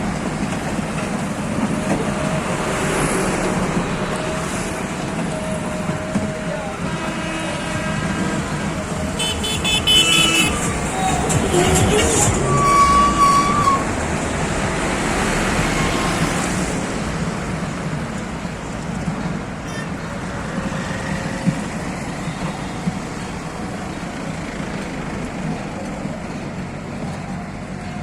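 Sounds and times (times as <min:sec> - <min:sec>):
road traffic: 0:00.0 - 0:28.0
car horn toot: 0:09.2 - 0:13.8.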